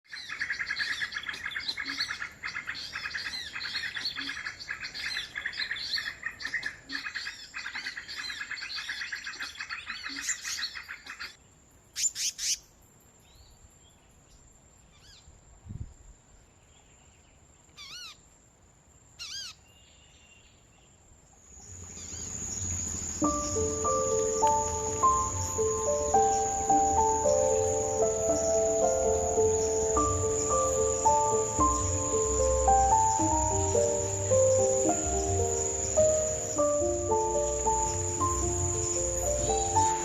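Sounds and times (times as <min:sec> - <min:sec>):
small birds chirping: 0:00.1 - 0:15.3, 0:16.6 - 0:18.2, 0:19.2 - 0:40.0
loud sweeping bird notes: 0:21.7 - 0:40.0.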